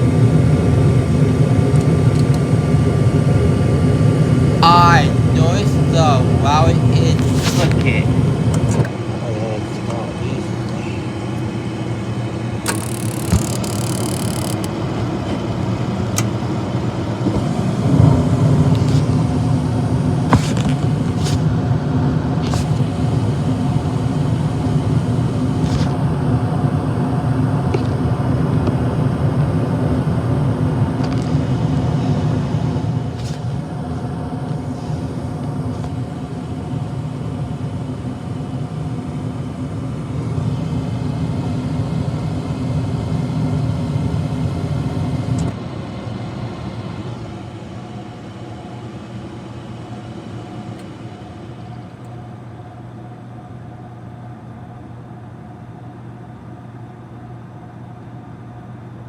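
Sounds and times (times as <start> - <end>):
low machine hum: 0.0 - 59.0
sharp clicks: 12.7 - 14.7.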